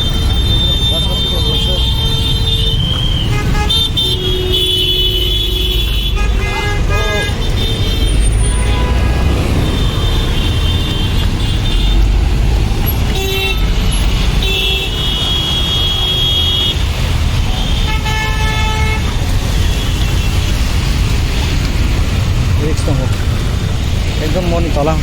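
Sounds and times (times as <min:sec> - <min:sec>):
vehicle horns honking: 0:00.0 - 0:12.2, 0:12.8 - 0:20.8
traffic engines rumbling: 0:00.0 - 0:25.0.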